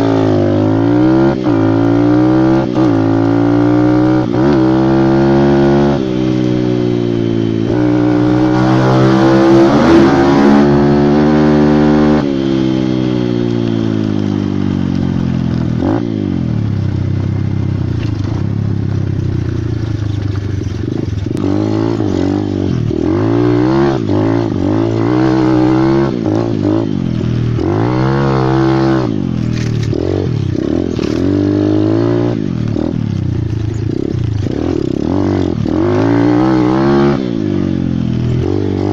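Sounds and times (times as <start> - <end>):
pit bike engine revving: 0.0 - 38.9.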